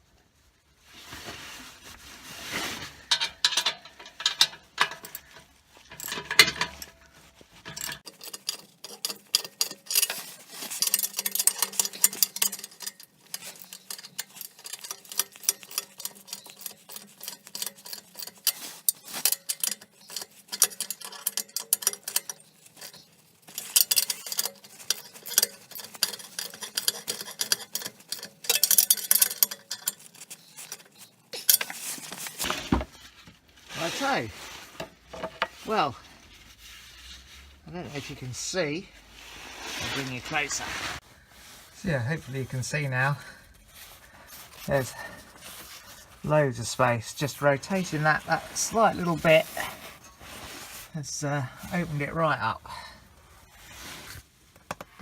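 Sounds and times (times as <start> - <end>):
metal tools clinking: 3.0 - 32.8, 41.8 - 53.0
ratchet clicking: 8.0 - 32.2.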